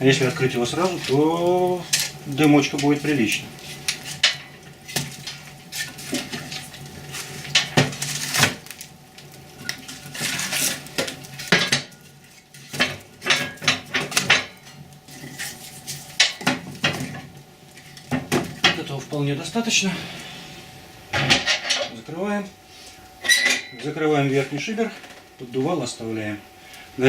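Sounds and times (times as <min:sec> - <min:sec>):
logs clattering against metal: 0:00.1 - 0:08.8, 0:09.6 - 0:19.0, 0:23.2 - 0:24.1.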